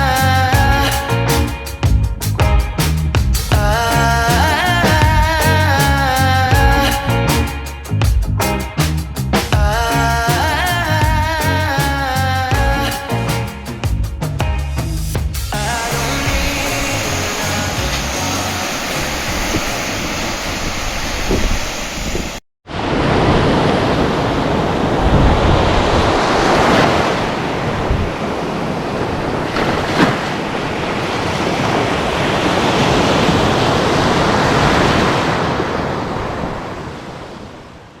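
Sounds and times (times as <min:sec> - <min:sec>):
heavy surf breaking: 0:00.0 - 0:38.0
wind buffeting microphone: 0:15.6 - 0:37.6.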